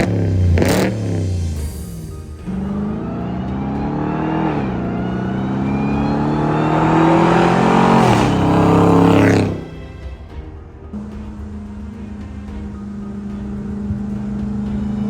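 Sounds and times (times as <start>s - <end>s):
truck engine accelerating hard: 0.0s - 9.9s, 11.0s - 15.0s.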